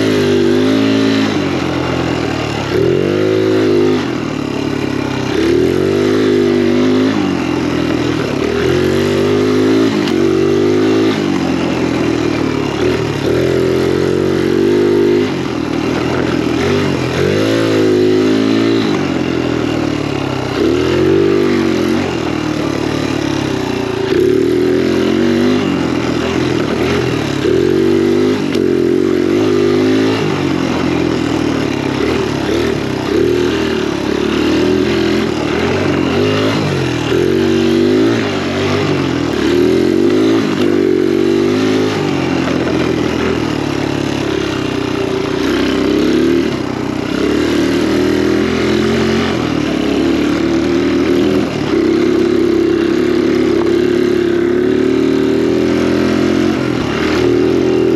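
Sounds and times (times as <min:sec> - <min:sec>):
dirt bike engine revving: 0:00.0 - 0:57.9.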